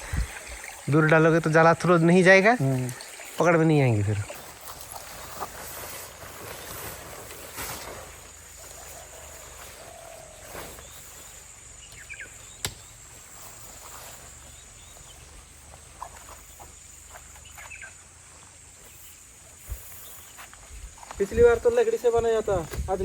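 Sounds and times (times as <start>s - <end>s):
insects trilling: 0.0s - 23.0s
running water hiss: 0.0s - 23.0s
bird chirps: 8.5s - 15.4s, 16.0s - 18.0s.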